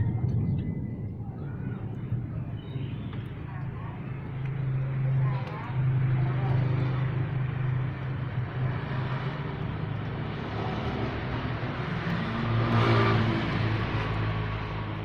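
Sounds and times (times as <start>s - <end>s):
vehicle engine humming: 0.0s - 15.0s
vehicle passing by: 3.8s - 15.0s.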